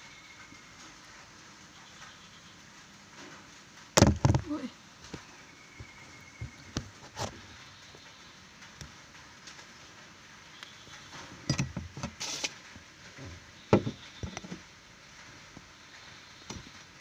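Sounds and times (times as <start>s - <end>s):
loud knocks: 4.0s - 4.5s
brief hiss: 12.1s - 12.7s.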